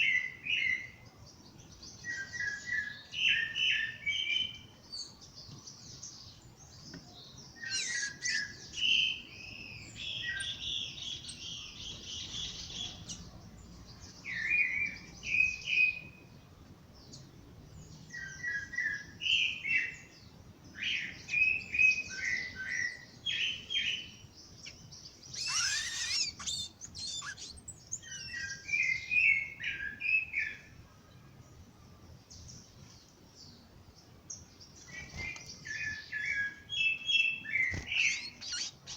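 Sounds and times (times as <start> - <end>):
birds chirping and warbling: 0.0 - 38.9
bird sweeping call: 7.6 - 8.6, 25.3 - 29.0, 37.6 - 38.9.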